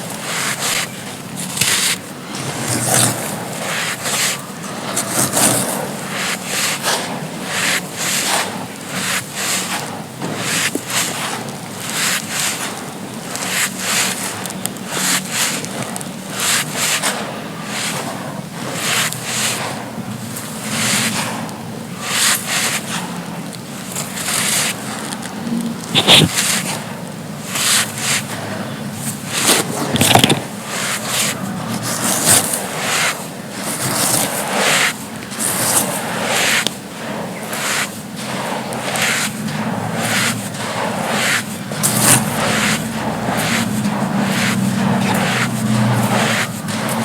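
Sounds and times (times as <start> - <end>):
dry sand crumbling: 0.0 - 47.0.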